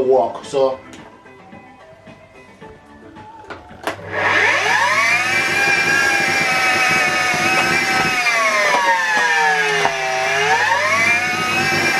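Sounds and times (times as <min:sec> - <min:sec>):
vacuum cleaner motor whining: 0:03.5 - 0:11.9.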